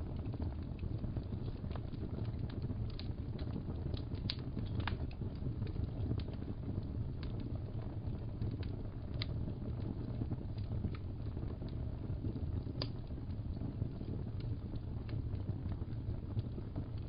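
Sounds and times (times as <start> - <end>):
fire popping and crackling: 0.0 - 17.0
low rumble of flames: 0.0 - 17.0.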